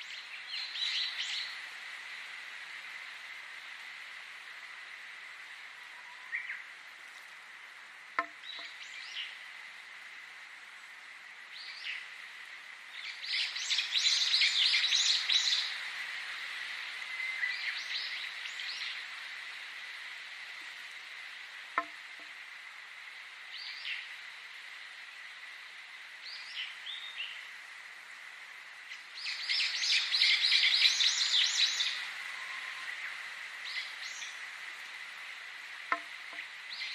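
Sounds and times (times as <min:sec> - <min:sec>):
songbirds chirping: 0:08.2 - 0:09.5, 0:28.8 - 0:35.0, 0:35.6 - 0:36.9.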